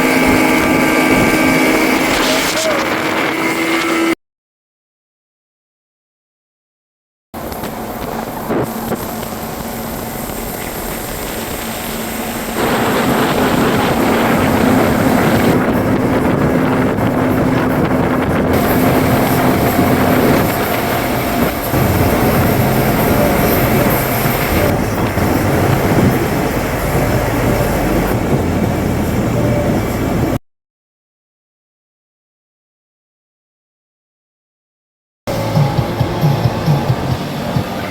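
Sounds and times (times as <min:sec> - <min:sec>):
motorboat engine humming: 0:00.0 - 0:04.1, 0:07.4 - 0:30.4, 0:35.3 - 0:37.9
water noise: 0:00.0 - 0:04.2, 0:07.4 - 0:30.4, 0:35.3 - 0:37.9
wind: 0:00.0 - 0:04.2, 0:07.4 - 0:30.4, 0:35.3 - 0:37.9.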